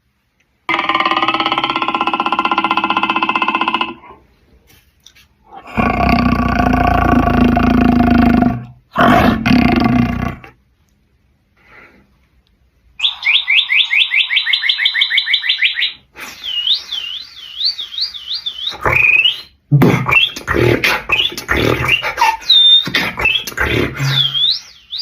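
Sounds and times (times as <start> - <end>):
warbling trill: 0.7 - 4.2
bird-like chirps: 13.0 - 20.5, 21.1 - 25.0
beatbox-like clicky strokes: 16.2 - 24.7.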